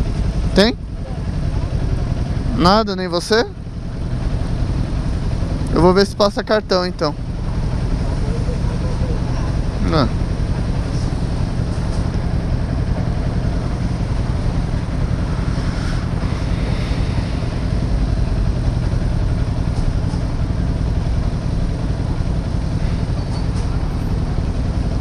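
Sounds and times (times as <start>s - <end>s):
motorcycle engine running: 0.0s - 25.0s
wind and road noise: 9.2s - 25.0s.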